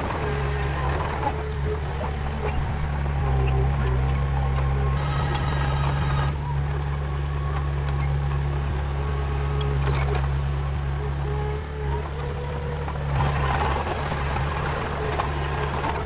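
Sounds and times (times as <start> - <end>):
heavy machine diesel engine: 0.0 - 16.0.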